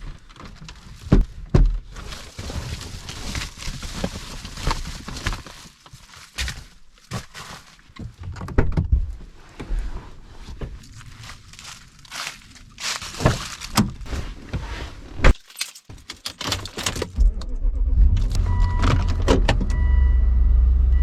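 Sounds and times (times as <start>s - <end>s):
keys jingling: 15.4s - 17.1s
car engine rumbling: 16.6s - 21.0s
dashboard warning chime: 18.4s - 21.0s.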